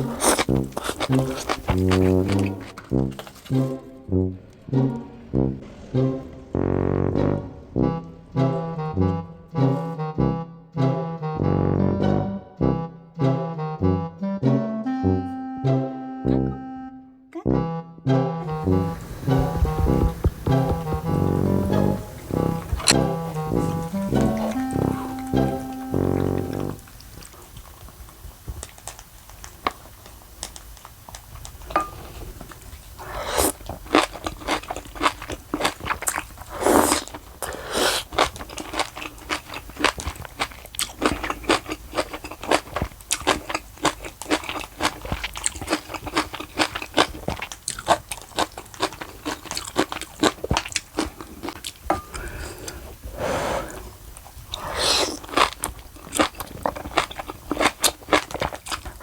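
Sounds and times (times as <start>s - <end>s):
crunchy bites and chewing: 0.0s - 3.8s, 26.4s - 52.4s, 53.6s - 59.0s.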